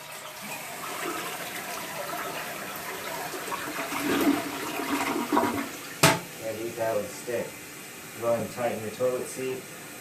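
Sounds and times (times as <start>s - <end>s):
toilet flushing: 0.0s - 6.3s.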